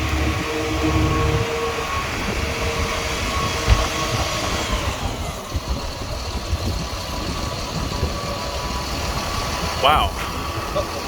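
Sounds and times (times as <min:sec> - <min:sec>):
truck engine and fuel pump running: 0:00.0 - 0:11.0.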